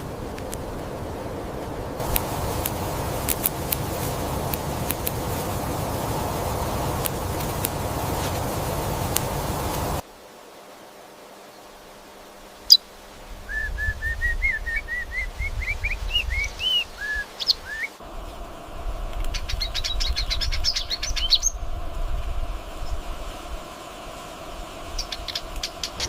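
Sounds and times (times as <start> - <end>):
low rumble: 0.0 - 10.0
bird singing: 13.5 - 18.0, 19.3 - 21.7, 24.9 - 26.0.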